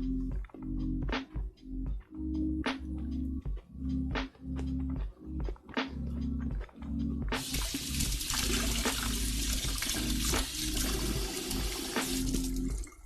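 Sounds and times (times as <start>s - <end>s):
background music: 0.0s - 13.0s
water rushing: 7.4s - 13.0s.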